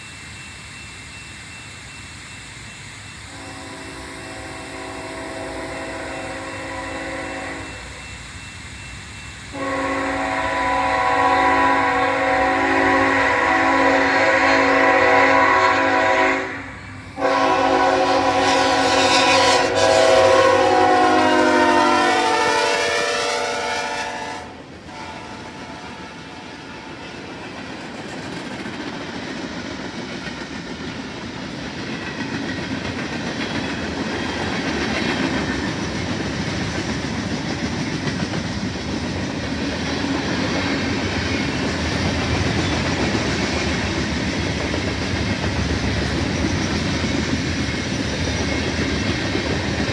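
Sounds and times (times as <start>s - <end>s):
train wheels on rail: 0.0s - 49.9s
locomotive air horn: 3.3s - 8.0s, 9.5s - 27.1s.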